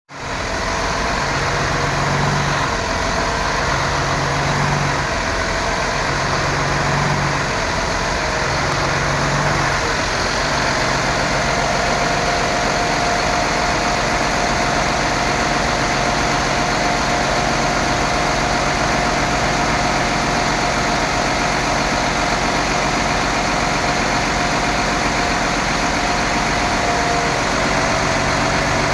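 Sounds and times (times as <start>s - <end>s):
diesel engine idling: 0.1s - 28.9s.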